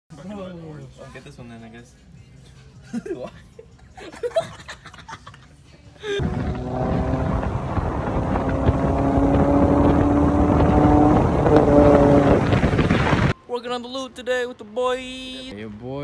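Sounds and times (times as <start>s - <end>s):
car engine droning: 6.2s - 13.3s
wind rush on microphone: 6.2s - 13.4s.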